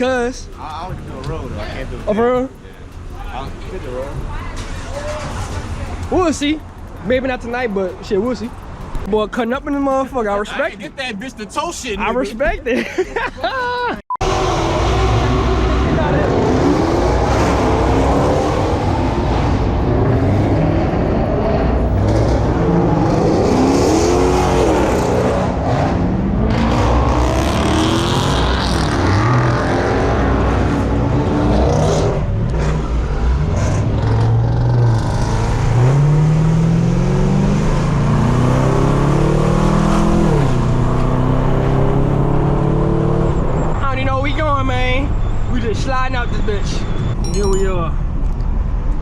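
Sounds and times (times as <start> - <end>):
car engines revving: 0.0 - 12.6, 13.2 - 45.5.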